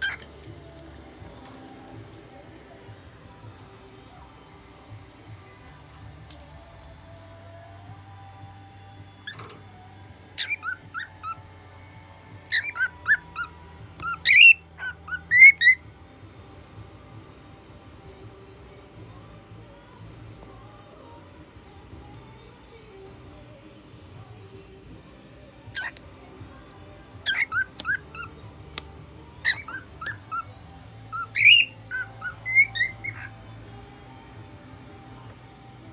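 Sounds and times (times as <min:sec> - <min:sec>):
cockatiel whistling song: 0:00.0 - 0:00.7, 0:10.4 - 0:11.6, 0:12.4 - 0:15.8, 0:25.7 - 0:26.1, 0:27.0 - 0:33.6.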